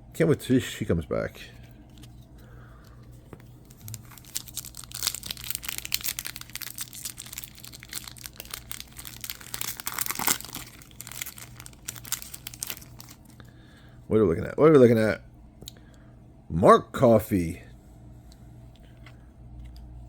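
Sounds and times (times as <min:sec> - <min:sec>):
plastic wrapper crinkling: 0:03.4 - 0:13.5.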